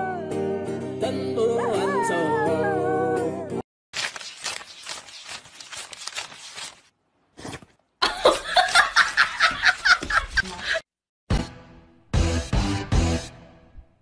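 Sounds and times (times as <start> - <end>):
person laughing: 8.0 - 10.8.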